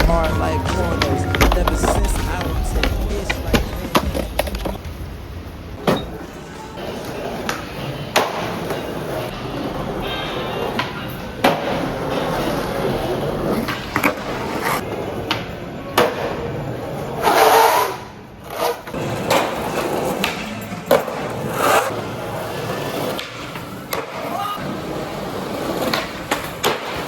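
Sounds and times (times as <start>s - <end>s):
skateboard wheels rolling on pavement: 2.7s - 27.0s
skateboard clacking on ground: 25.4s - 27.0s.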